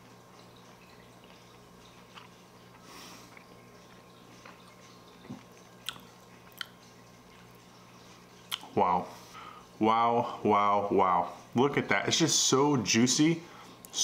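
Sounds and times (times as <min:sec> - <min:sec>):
soft chewing: 0:00.0 - 0:09.4
low steady hum: 0:00.0 - 0:14.0
mouth clicks and smacks: 0:04.4 - 0:06.8, 0:08.5 - 0:08.8.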